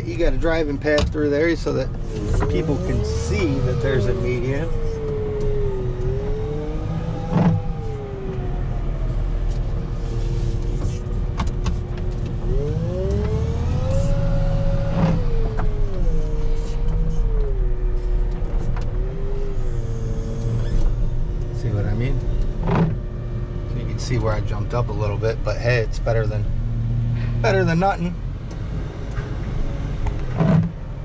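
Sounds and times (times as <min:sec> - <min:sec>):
loader diesel engine and hydraulics: 0:00.0 - 0:11.4.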